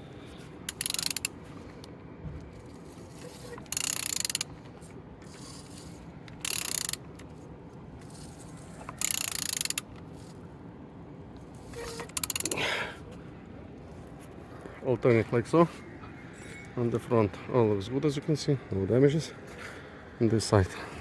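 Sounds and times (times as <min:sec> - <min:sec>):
ratchet wrench clicking: 0:00.7 - 0:01.4, 0:03.1 - 0:04.5, 0:05.2 - 0:07.4, 0:08.0 - 0:10.3, 0:11.8 - 0:12.6.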